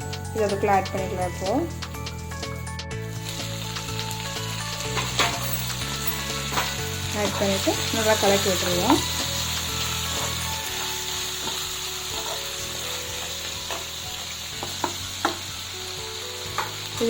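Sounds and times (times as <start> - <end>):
chicken sizzling in a pan: 3.0 - 17.0
spatula knocking against pan: 14.6 - 15.5.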